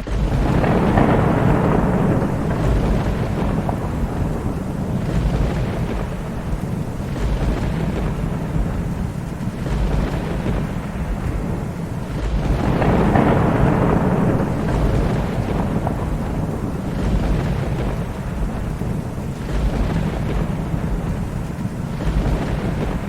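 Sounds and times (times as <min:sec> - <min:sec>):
steady rain: 0:00.0 - 0:23.0
thunder rumbling: 0:00.0 - 0:23.0.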